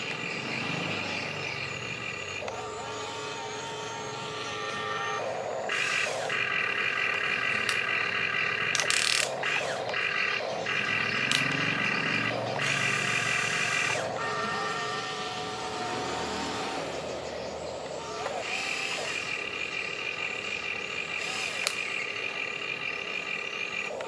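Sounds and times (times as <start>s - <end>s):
toy bulldozer motors whining: 0.0s - 24.0s
sharp click: 8.7s - 10.0s, 11.0s - 11.8s, 21.4s - 22.0s.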